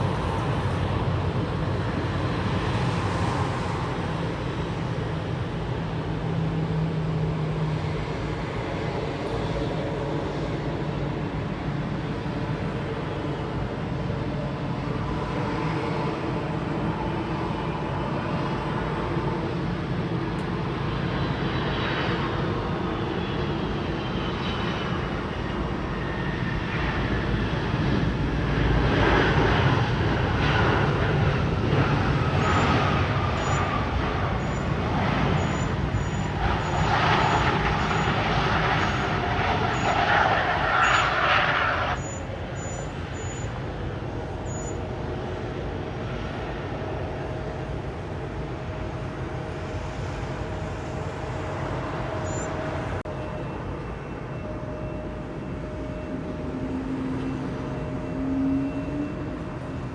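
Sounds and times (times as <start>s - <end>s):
jet airliner passing: 0.0s - 59.9s.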